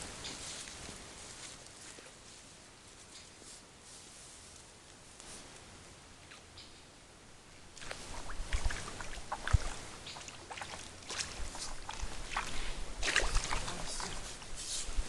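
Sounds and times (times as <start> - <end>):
water splashing and sloshing: 7.7 - 15.0.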